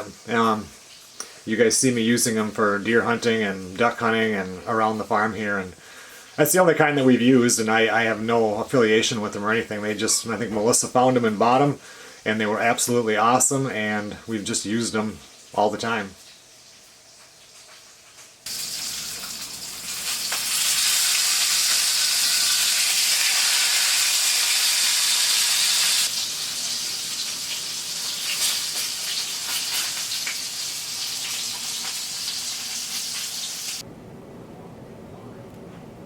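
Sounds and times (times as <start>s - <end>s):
food sizzling in a frying pan: 0.0s - 1.5s, 15.1s - 33.8s.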